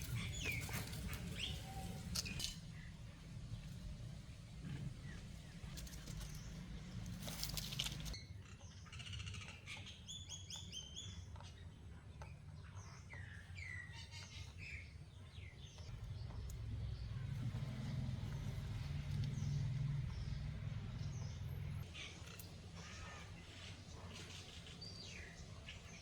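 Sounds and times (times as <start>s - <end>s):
low steady rumble: 0.0s - 8.2s, 15.9s - 22.0s
rustling: 0.0s - 8.2s
small birds chirping: 0.0s - 26.0s.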